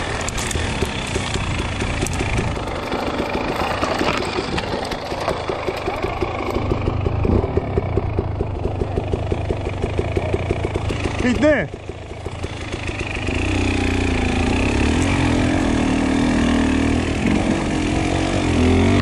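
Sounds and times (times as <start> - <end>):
dirt bike engine running: 0.0 - 19.0.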